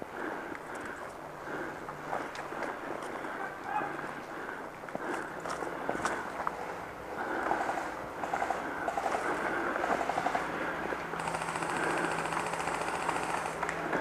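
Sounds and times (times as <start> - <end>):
airsoft guns firing bursts: 7.5 - 10.5, 11.2 - 14.0.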